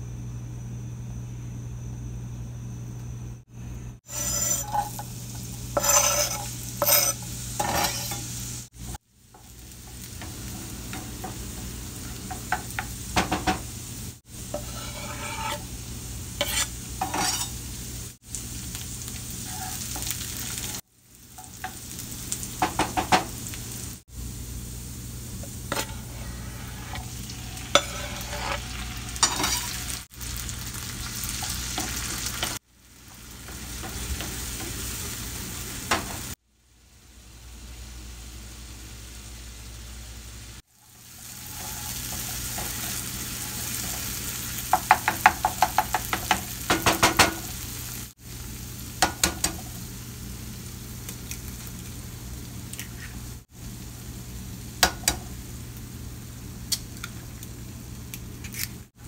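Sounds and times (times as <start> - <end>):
food sizzling in oil: 4.0 - 59.0
utensil scraping and clinking on pan: 4.1 - 8.4, 14.5 - 15.7, 16.4 - 17.6, 25.7 - 30.0, 41.4 - 44.1.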